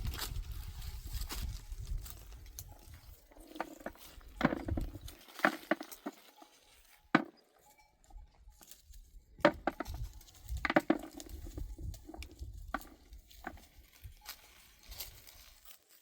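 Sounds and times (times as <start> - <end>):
sharp knocks and taps: 9.4 - 13.6.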